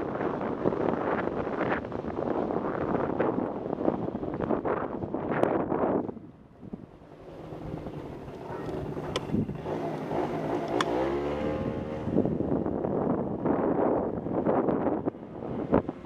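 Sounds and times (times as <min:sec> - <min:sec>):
wind noise on microphone: 0:00.0 - 0:16.0
motorcycle engine revving: 0:07.0 - 0:13.9.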